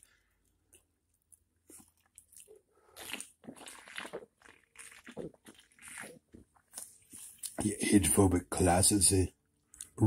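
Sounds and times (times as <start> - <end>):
person chewing crunchy food: 0.0 - 7.6
wet mouth sounds: 1.7 - 7.6.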